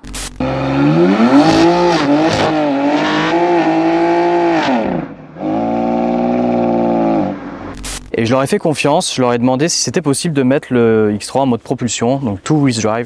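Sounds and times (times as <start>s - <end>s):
car engine revving high: 0.4s - 7.8s.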